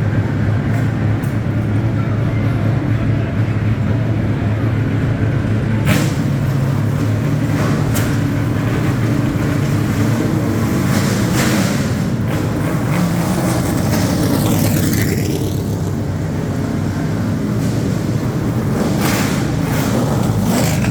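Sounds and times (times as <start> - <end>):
race car engines idling: 0.0 - 20.9.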